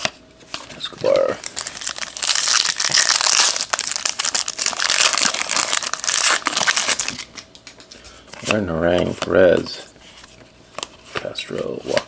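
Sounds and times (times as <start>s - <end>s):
plastic wrapper crinkling: 1.0s - 7.9s.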